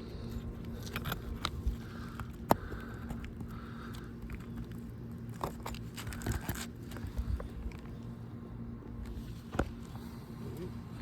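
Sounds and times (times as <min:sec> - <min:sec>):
steady low hum: 0:00.0 - 0:11.0
shingle crackling and clicking: 0:00.6 - 0:08.1.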